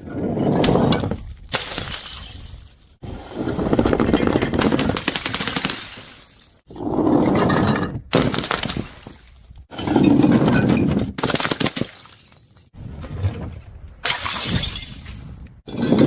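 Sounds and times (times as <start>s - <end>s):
glass bottles shattering: 1.0s - 3.0s, 4.6s - 6.6s, 8.2s - 12.7s, 14.0s - 16.0s.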